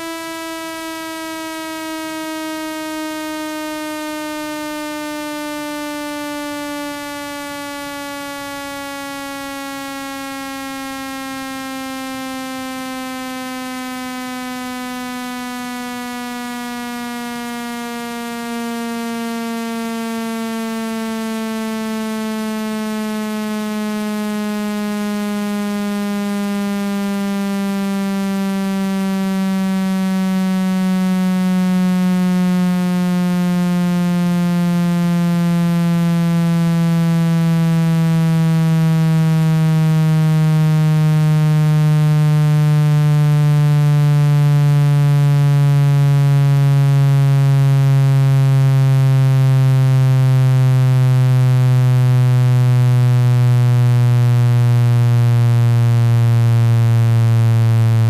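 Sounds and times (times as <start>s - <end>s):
buzzy electronic tone gliding down: 50.3s - 58.0s.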